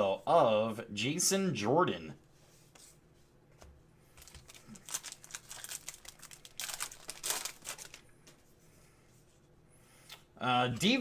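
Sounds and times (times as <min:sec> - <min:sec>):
trading card packaging crinkling: 0:04.2 - 0:08.1.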